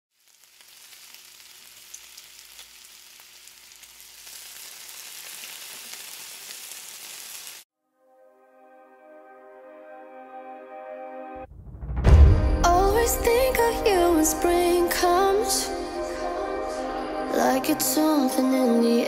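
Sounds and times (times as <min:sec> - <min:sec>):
chicken deep-frying in oil: 0:00.1 - 0:07.7
soft music: 0:07.8 - 0:19.0.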